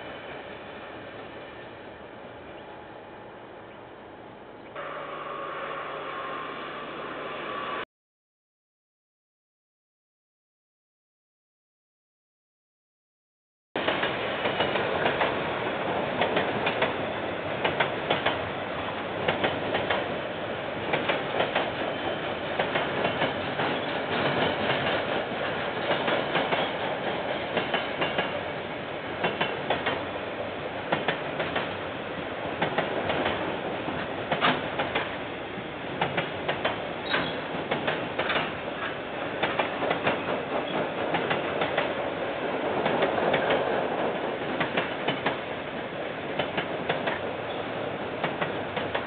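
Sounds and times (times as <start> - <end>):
train wheels clicking on rail joints: 13.8 - 20.2, 20.8 - 28.6, 29.2 - 30.2, 30.8 - 31.8, 32.5 - 35.2, 35.9 - 45.6, 46.3 - 49.0
train rumble: 13.8 - 49.0.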